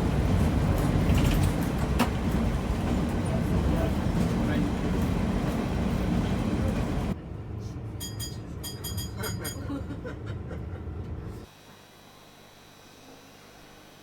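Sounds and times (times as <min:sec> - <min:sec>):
train rumbling: 0:00.0 - 0:11.5
high metallic clinks: 0:08.0 - 0:09.6.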